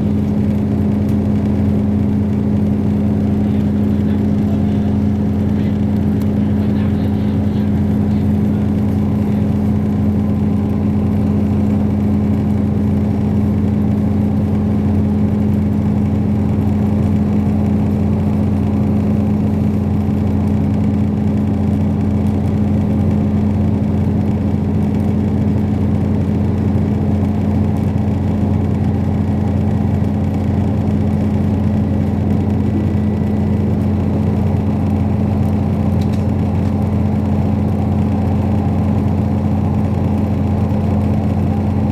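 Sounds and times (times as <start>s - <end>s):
train running noise inside coach: 0.0s - 41.9s.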